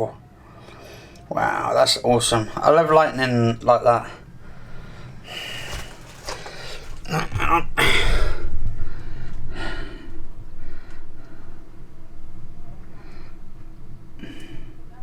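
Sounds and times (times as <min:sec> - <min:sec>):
man breathing heavily: 0:04.2 - 0:11.8.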